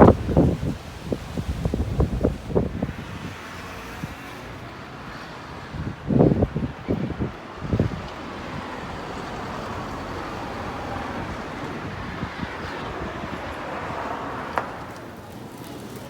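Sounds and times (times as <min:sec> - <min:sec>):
steady rushing noise: 0:00.0 - 0:03.4.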